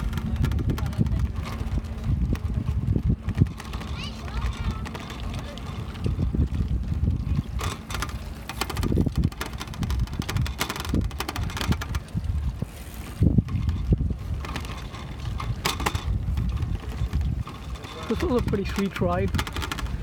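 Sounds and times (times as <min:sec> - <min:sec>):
wind buffeting microphone: 0:00.0 - 0:20.0
small knocks and clicks: 0:07.6 - 0:12.1, 0:13.4 - 0:20.0.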